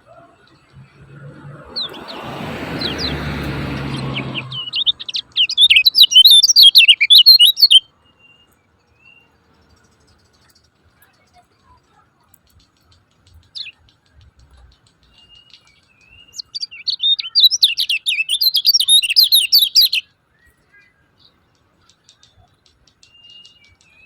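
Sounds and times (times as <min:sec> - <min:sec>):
songbird sharp chirps: 0:00.0 - 0:24.0
rushing noise: 0:00.7 - 0:05.4.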